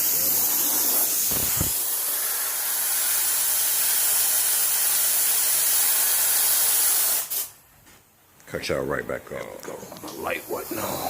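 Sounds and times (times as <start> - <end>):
air compressor running: 0.0 - 7.5
hiss of rushing air: 0.0 - 7.6.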